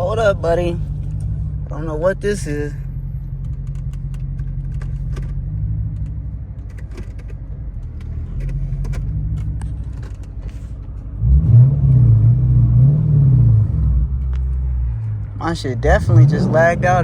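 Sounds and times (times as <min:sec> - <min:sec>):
car engine rumble: 0:00.0 - 0:17.0
road rumble: 0:00.0 - 0:17.0
light clicks and rattles: 0:03.4 - 0:11.1.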